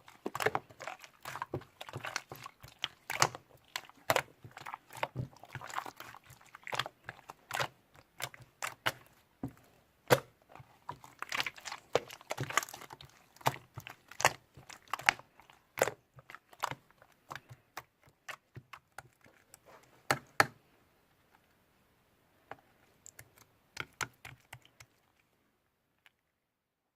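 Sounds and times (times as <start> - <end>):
handling clicks and crinkling: 0.0 - 20.5.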